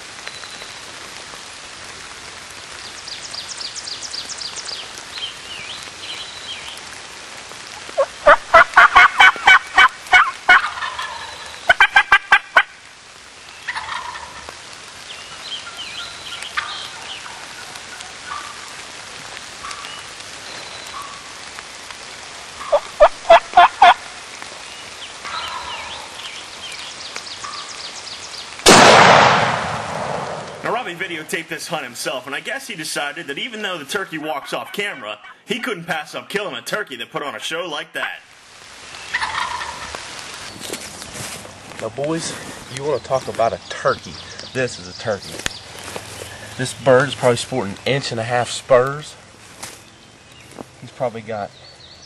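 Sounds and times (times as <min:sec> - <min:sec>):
rain hissing: 0:00.0 - 0:52.0
faint songbird calls: 0:02.7 - 0:06.8, 0:19.6 - 0:21.4, 0:24.6 - 0:28.6, 0:42.3 - 0:47.1
turkey gobbling: 0:08.0 - 0:12.8, 0:13.6 - 0:14.5, 0:15.4 - 0:18.7, 0:20.9 - 0:21.3, 0:22.6 - 0:24.1, 0:25.2 - 0:26.3, 0:27.4 - 0:27.7, 0:34.2 - 0:35.4, 0:39.0 - 0:40.1.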